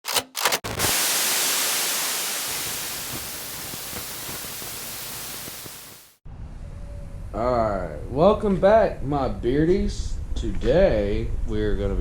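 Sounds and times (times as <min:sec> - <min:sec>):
hissing static noise: 0:00.7 - 0:06.2.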